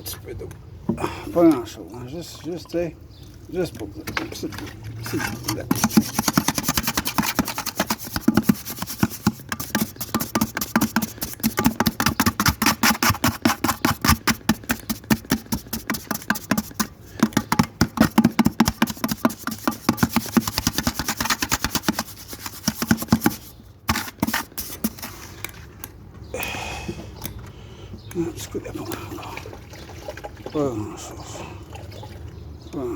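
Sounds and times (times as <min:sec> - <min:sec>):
trowel scraping and mixing mortar: 0:03.7 - 0:26.0.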